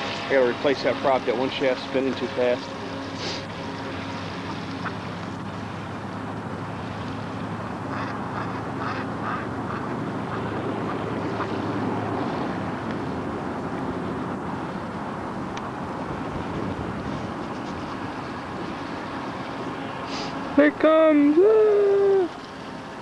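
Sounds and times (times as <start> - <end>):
model boat electric motor hum: 0.0 - 19.8
person talking: 20.6 - 22.4.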